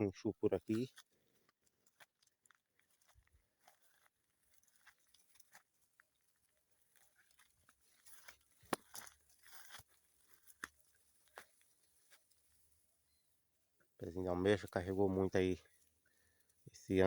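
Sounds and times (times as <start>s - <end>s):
footsteps through dry leaves: 2.8s - 12.3s
twig snapping: 8.2s - 9.8s.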